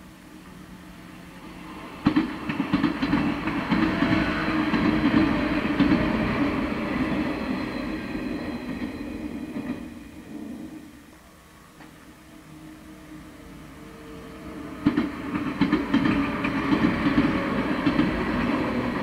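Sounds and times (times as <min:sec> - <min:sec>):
train passing: 0:00.0 - 0:19.0
wheels clacking over rail joints: 0:14.8 - 0:19.0.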